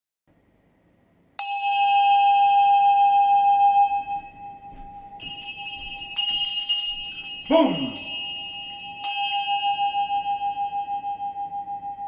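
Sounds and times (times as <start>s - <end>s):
bell ringing: 3.8s - 11.0s.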